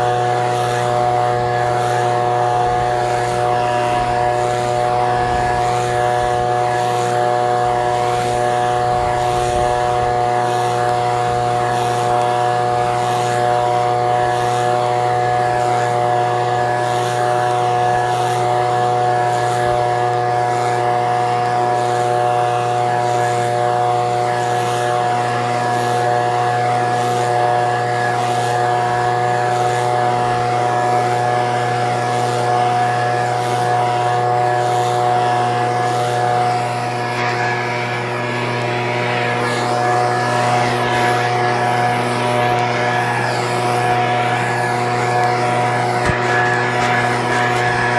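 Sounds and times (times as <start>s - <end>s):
leaf blower engine running: 0.0s - 47.9s.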